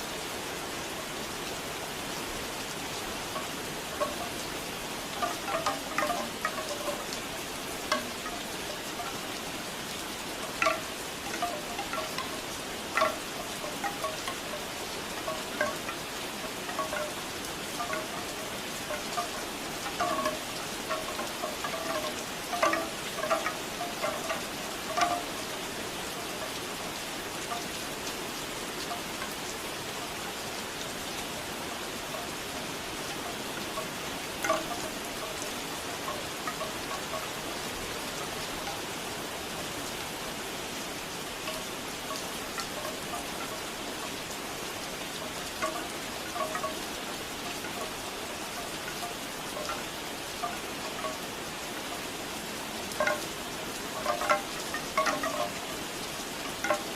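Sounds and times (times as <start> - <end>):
steady rain: 0.0 - 56.9
bamboo wind chimes clacking: 0.9 - 56.9.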